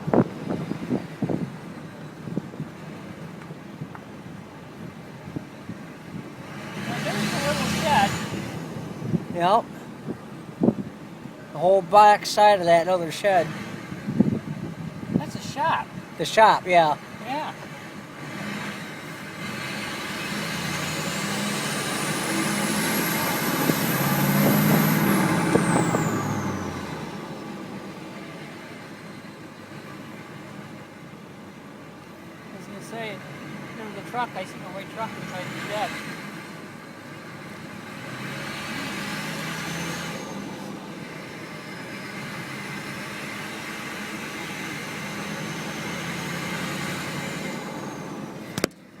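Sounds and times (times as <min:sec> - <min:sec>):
vehicle engine running: 0:00.0 - 0:12.2
truck engine passing: 0:04.3 - 0:48.7.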